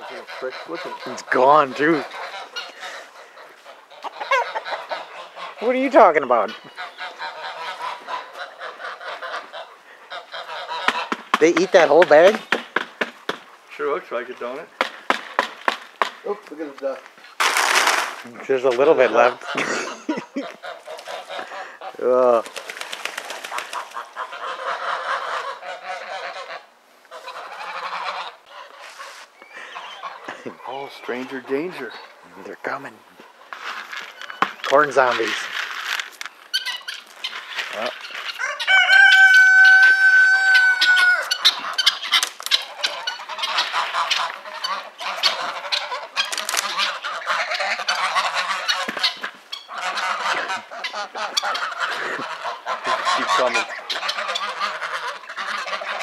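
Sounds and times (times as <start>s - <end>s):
geese honking and cackling: 0.0s - 56.0s
rooster crowing: 38.4s - 41.5s.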